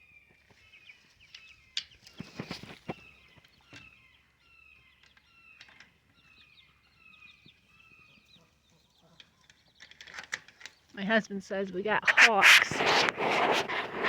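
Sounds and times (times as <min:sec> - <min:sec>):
soft chicken calls: 0:00.9 - 0:04.3, 0:12.0 - 0:14.0.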